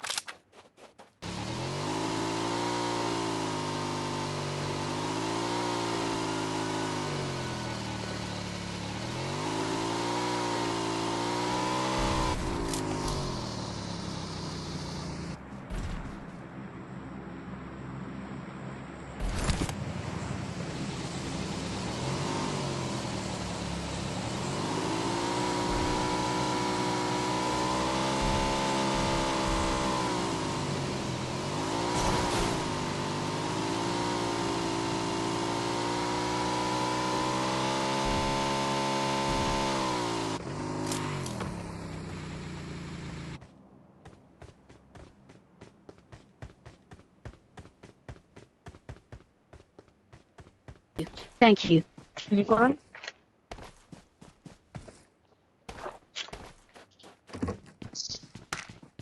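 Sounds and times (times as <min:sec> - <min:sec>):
motorcycle engine running: 0:01.2 - 0:16.3, 0:21.0 - 0:51.1
wind and road rush: 0:01.2 - 0:55.6.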